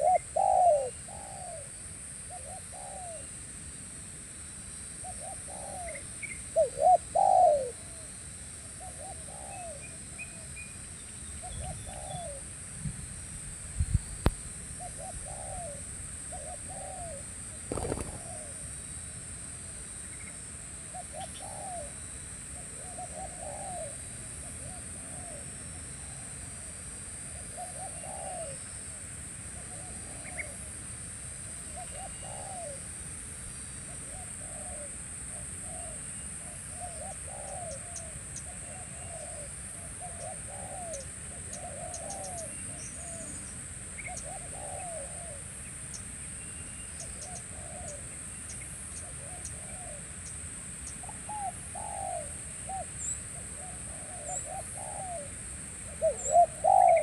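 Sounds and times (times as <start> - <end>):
doves cooing: 0.0 - 1.7, 6.6 - 7.9, 14.8 - 18.6, 22.8 - 24.0, 27.5 - 28.6, 31.8 - 32.8, 36.7 - 43.4, 44.1 - 45.4, 47.2 - 48.0, 51.1 - 55.3, 55.9 - 57.0
steady high-pitched hiss: 0.0 - 57.0.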